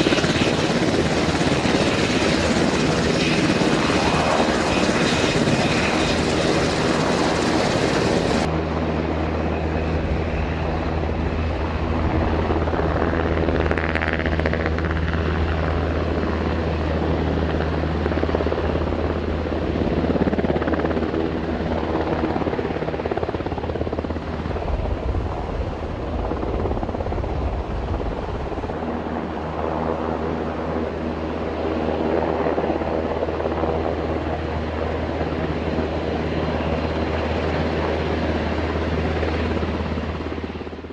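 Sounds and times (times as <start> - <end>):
quadcopter propellers buzzing: 0.0 - 16.0.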